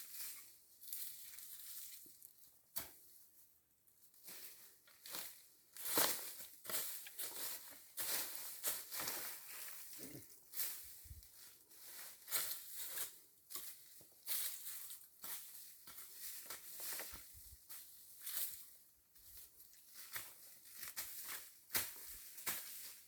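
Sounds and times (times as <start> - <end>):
dry rustling and crackling: 5.8 - 12.9.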